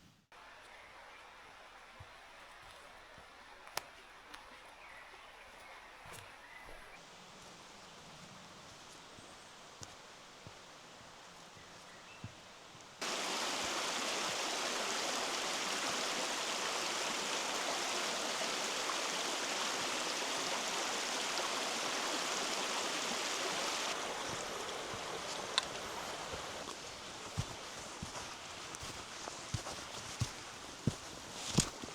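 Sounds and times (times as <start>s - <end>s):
forest stream rushing: 7.0s - 31.9s
light ticks: 25.2s - 25.9s.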